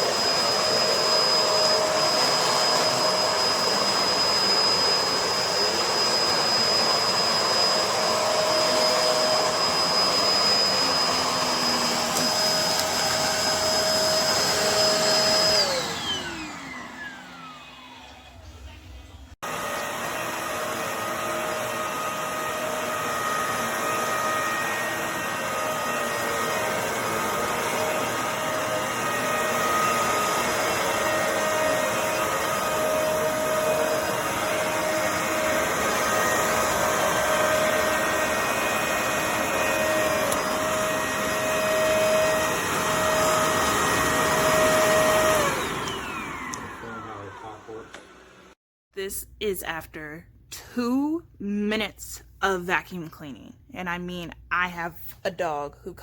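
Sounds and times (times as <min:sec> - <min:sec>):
upright vacuum running: 0:00.0 - 0:48.6.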